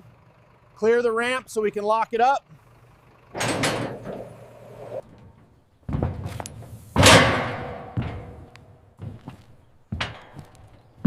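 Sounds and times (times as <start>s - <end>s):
heavy thud of loading ramp: 3.4s - 9.2s
loud ringing slam: 7.0s - 8.5s.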